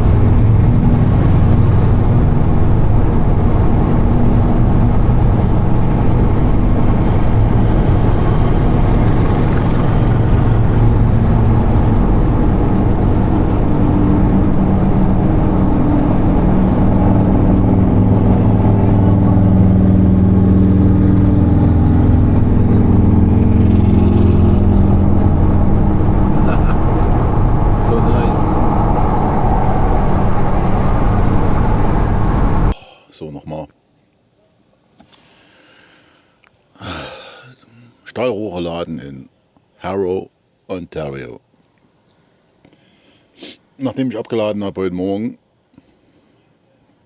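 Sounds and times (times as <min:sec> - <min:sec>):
diesel truck engine drone: 0:00.0 - 0:32.8.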